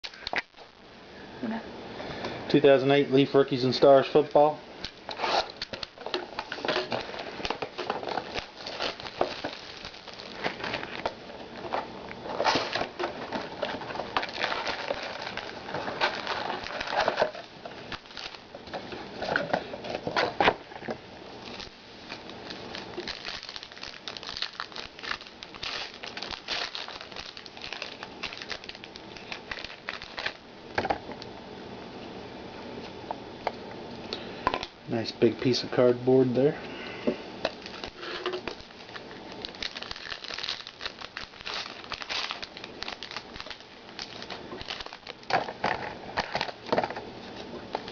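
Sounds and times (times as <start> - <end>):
wrapper crinkling: 3.8 - 20.5, 21.4 - 30.4, 37.5 - 47.9.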